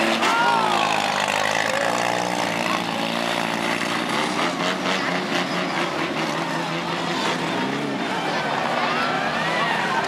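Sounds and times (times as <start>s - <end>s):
car engines running: 0.0s - 10.0s.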